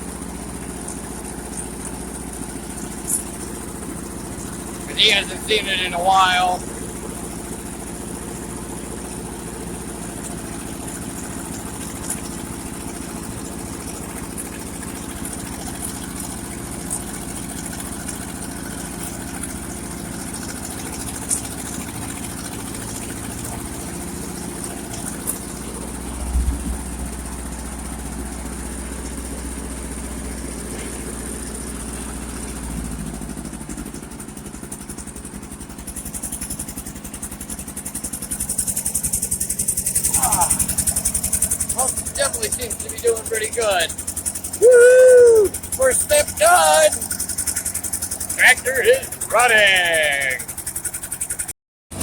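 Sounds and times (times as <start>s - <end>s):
tractor engine running: 0.0s - 52.0s.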